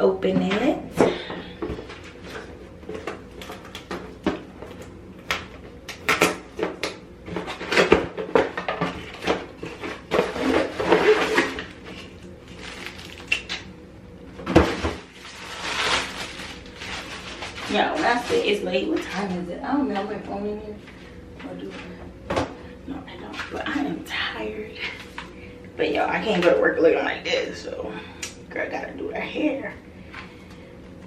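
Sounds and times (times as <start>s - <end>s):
packaging rustling: 9.0s - 13.6s, 14.6s - 19.1s.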